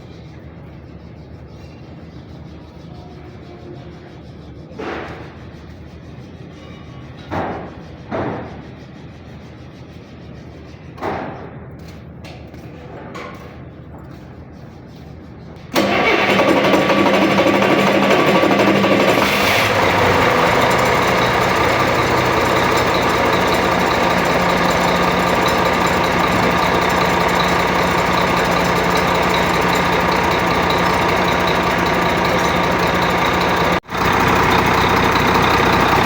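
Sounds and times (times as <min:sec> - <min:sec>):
diesel engine running: 0:15.7 - 0:36.0.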